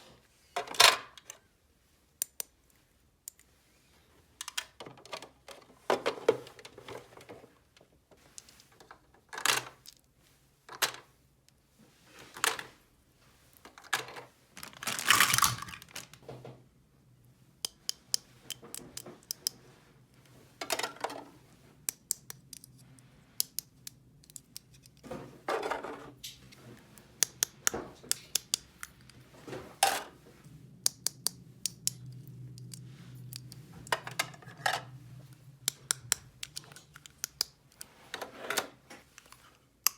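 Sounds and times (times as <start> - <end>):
rustling: 14.5 - 16.2
plastic toy pieces clicking: 23.4 - 25.0, 27.2 - 29.0, 35.6 - 37.9.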